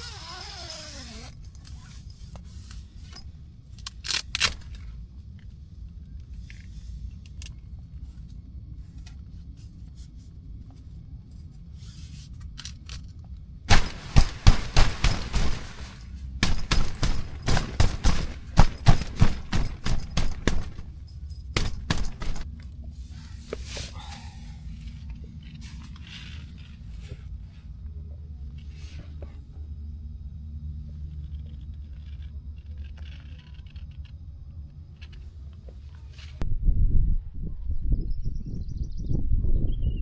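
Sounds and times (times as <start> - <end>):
low steady rumble: 0.0 - 40.0
sharp cracks and snaps: 3.7 - 5.6, 12.4 - 20.9.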